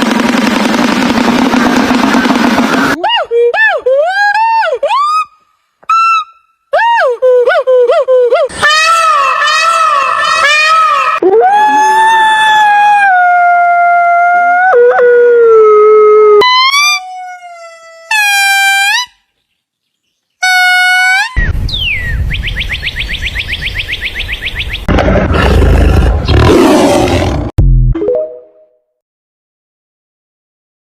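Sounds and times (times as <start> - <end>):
rising yelping calls: 8.5 - 11.2
rough noisy animal call: 8.5 - 11.2
animal howl: 8.6 - 18.1.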